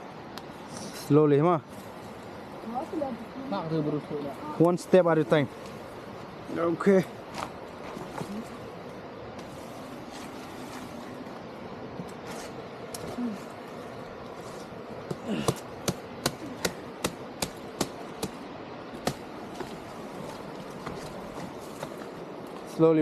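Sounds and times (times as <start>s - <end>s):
machete chopping wood: 15.1s - 18.4s, 19.0s - 19.7s.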